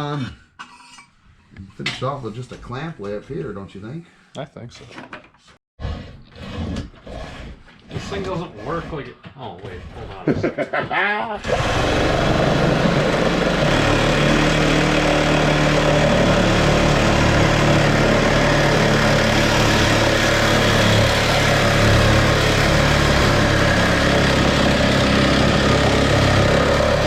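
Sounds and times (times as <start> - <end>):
car engine idling: 11.4 - 27.0.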